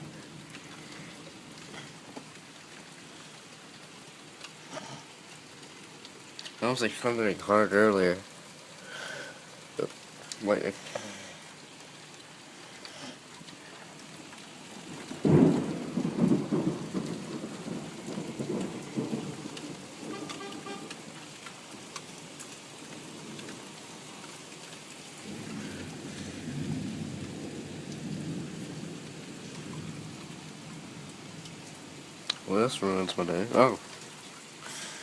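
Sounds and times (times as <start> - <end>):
steady rain: 0.0 - 35.0
thunder rumbling: 14.8 - 21.2, 25.2 - 31.4.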